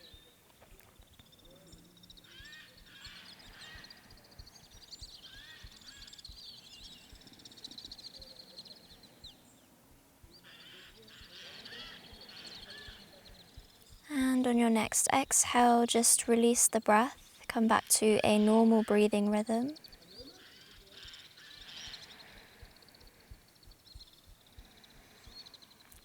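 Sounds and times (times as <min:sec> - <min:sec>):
birds chirping and trilling: 0:01.0 - 0:26.0.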